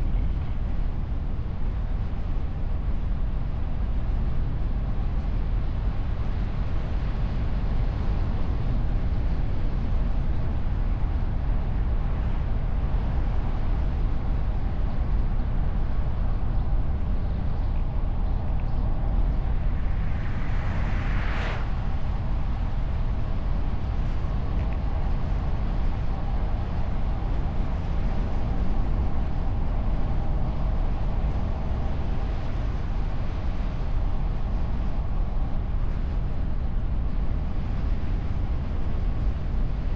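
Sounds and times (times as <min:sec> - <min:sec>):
wind and tyre rumble: 0:00.0 - 0:39.9
whoosh: 0:19.8 - 0:22.0.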